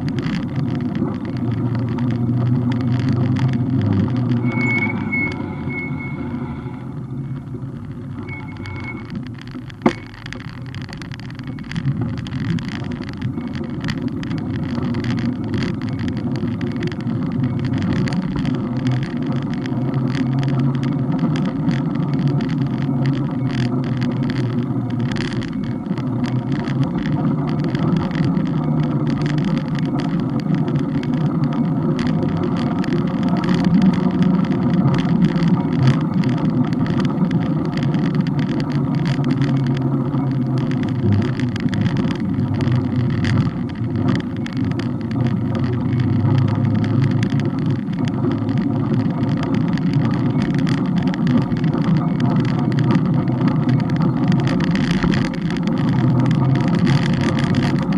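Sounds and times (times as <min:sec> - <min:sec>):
small rattling clicks: 0:00.0 - 0:06.1, 0:07.3 - 0:57.9
road and wind noise: 0:00.0 - 0:57.9.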